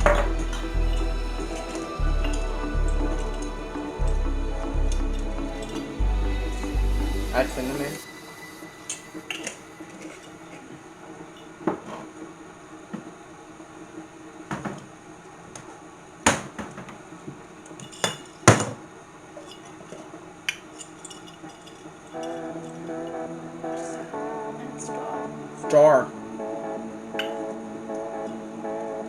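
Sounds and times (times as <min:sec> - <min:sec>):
utensils clinking against a pot: 0:19.4 - 0:22.4.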